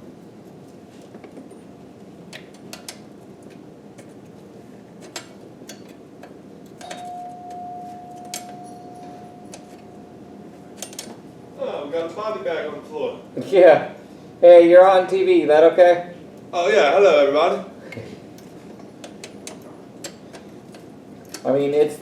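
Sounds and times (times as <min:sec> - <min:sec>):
steady single-pitched tone: 0:06.8 - 0:10.7.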